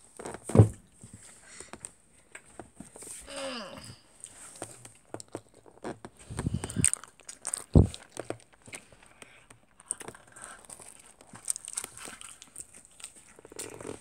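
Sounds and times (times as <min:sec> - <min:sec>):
biting and chewing pizza: 0:04.2 - 0:14.0
dull thump: 0:07.8 - 0:08.0.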